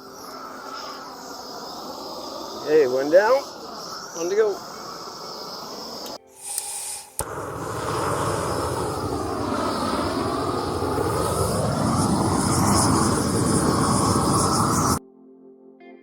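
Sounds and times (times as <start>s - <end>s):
gas torch flame rushing: 0.0s - 15.0s
faint soft music: 15.0s - 16.0s.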